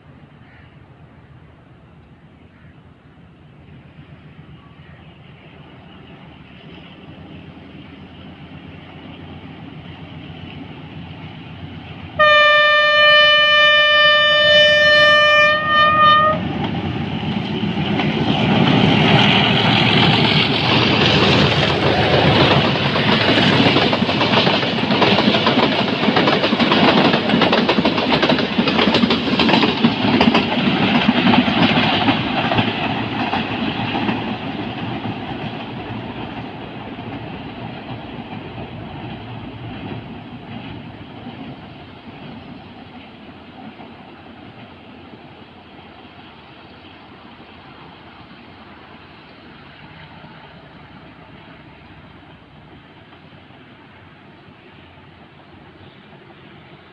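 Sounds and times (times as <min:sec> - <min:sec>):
train engine rumble: 0:00.0 - 0:56.9
locomotive horn blast: 0:12.2 - 0:16.5
wheels clattering over rails: 0:16.4 - 0:44.8.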